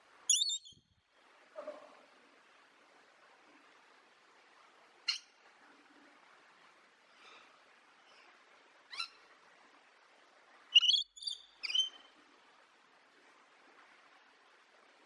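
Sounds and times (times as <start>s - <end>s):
parrot high-pitched calls: 0.3s - 0.8s, 8.9s - 9.2s, 10.7s - 12.0s.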